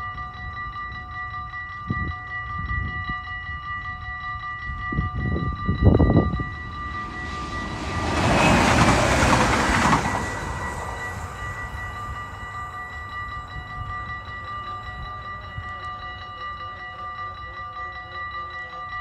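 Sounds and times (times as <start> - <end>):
level crossing warning bell: 0.0 - 19.0
electric train rushing past: 5.1 - 14.8.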